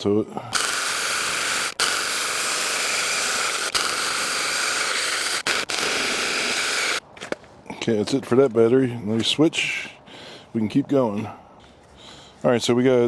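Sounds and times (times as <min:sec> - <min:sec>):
chainsaw cutting log: 0:00.5 - 0:07.0.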